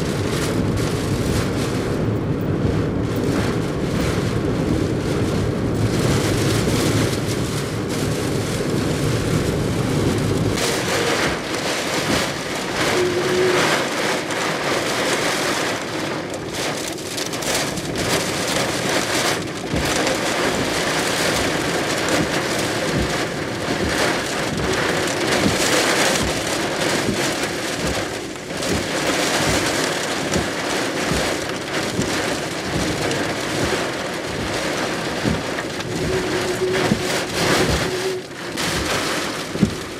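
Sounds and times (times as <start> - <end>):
low rumble: 0.0 - 14.4
gusting wind: 0.0 - 39.9
heavy rain pouring: 0.0 - 39.9.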